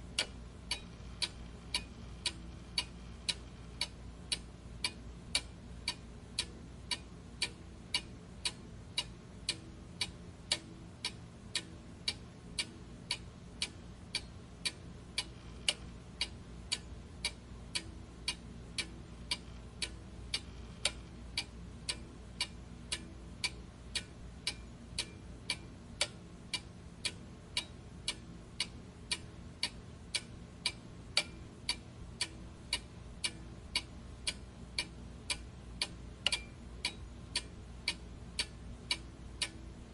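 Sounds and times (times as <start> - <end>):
faint background hiss: 0.0 - 39.9
clock ticking: 0.1 - 39.9.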